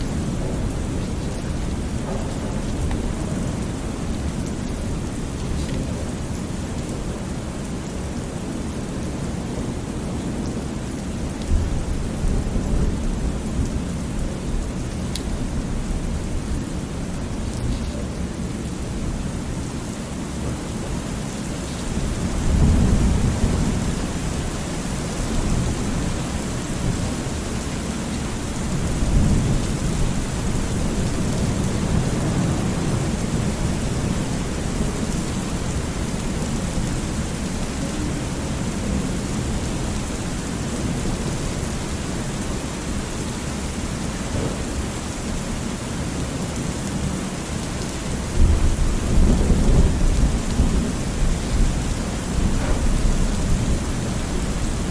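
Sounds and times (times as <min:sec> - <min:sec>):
steady rain: 0:00.0 - 0:54.9
low rolling thunder: 0:22.0 - 0:27.4, 0:28.6 - 0:41.9, 0:48.3 - 0:54.9.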